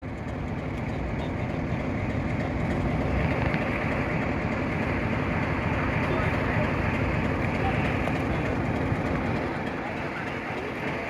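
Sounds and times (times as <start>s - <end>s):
diesel locomotive engine working hard: 0.0s - 11.0s.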